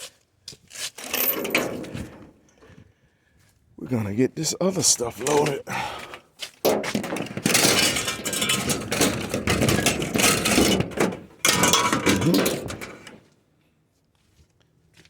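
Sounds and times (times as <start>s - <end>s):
scrap metal rustling and clattering: 0.6s - 2.8s, 4.8s - 13.4s.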